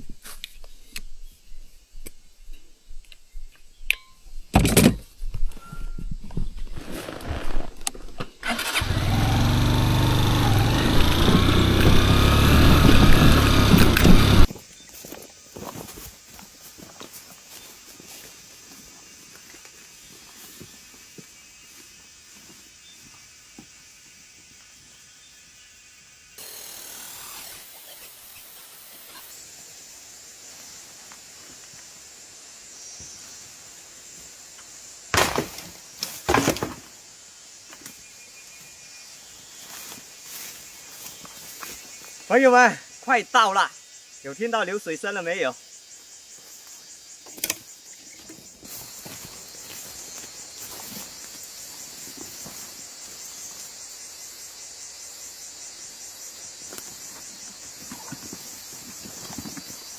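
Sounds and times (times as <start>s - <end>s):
insect chorus: 0.0s - 59.9s
branches crackling and snapping: 7.1s - 14.5s
steady high hiss: 16.1s - 36.2s.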